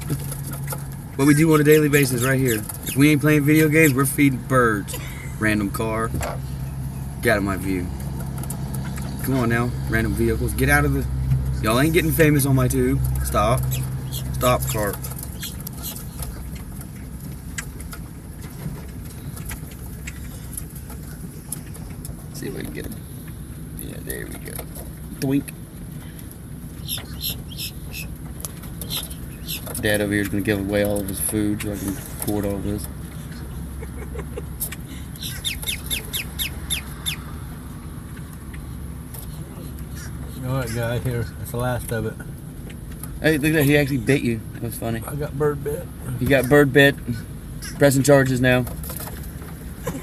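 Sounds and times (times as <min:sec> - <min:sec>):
vehicle low rumble: 0:00.0 - 0:50.0
bird chirping: 0:02.0 - 0:04.1, 0:13.2 - 0:17.8, 0:26.0 - 0:30.5, 0:34.6 - 0:37.3.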